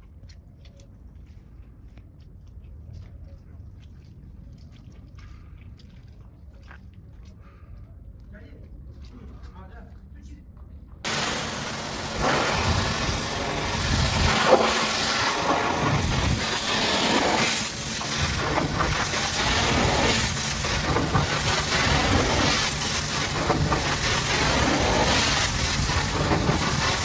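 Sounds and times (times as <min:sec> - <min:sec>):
pressure washer water jet hissing: 0:11.1 - 0:27.0.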